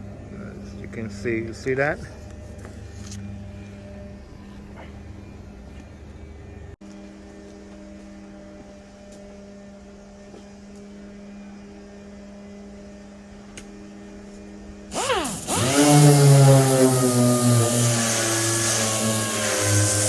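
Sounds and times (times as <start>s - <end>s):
low hum: 0.0s - 20.0s
pneumatic sander hissing and whining: 14.9s - 20.0s.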